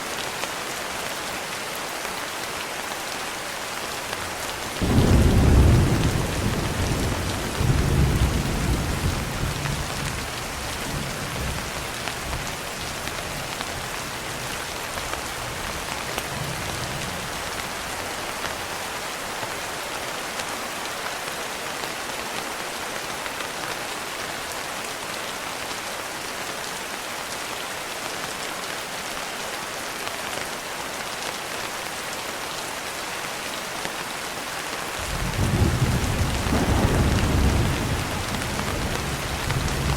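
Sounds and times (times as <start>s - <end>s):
heavy rain: 0.0s - 39.9s
low roll of thunder: 4.8s - 10.0s, 35.1s - 39.9s.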